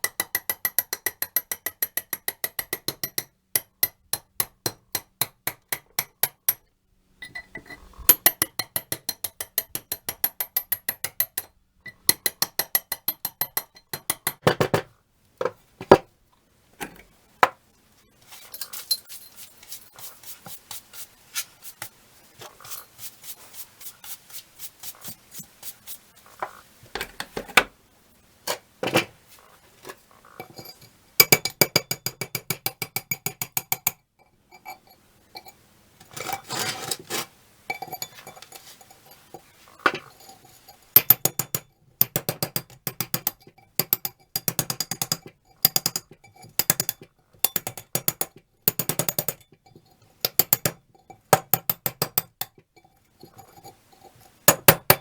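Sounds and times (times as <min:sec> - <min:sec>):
metal striking metal wrench: 0:00.0 - 0:06.6, 0:07.2 - 0:14.5, 0:30.5 - 0:34.0, 0:41.0 - 0:49.5, 0:50.2 - 0:50.8, 0:51.4 - 0:52.6.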